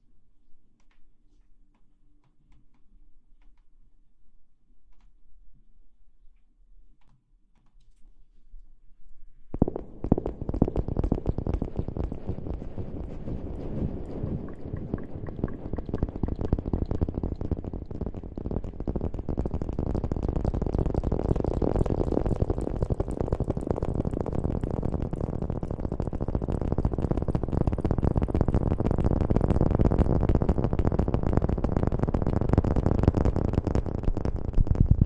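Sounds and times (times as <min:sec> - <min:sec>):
rubbing and rustling on microphone: 0:09.6 - 0:35.0.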